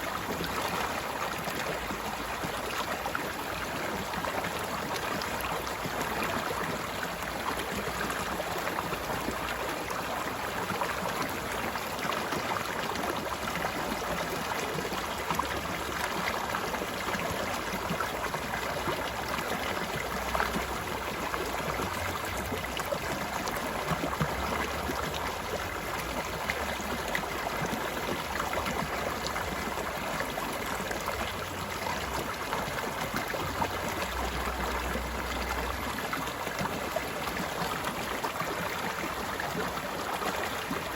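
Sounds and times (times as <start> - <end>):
stream running over rocks: 0.0 - 40.9.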